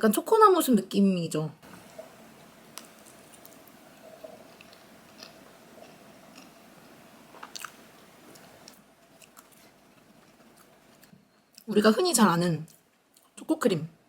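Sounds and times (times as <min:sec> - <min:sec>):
chewing soft cake: 0:01.7 - 0:11.7.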